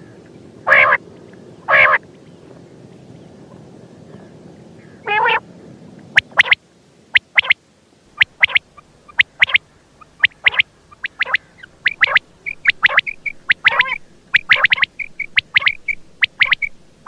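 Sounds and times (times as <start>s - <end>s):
quail chirping calls: 0.7s - 1.0s, 1.6s - 2.0s, 4.8s - 5.4s, 6.2s - 7.6s, 8.2s - 17.0s.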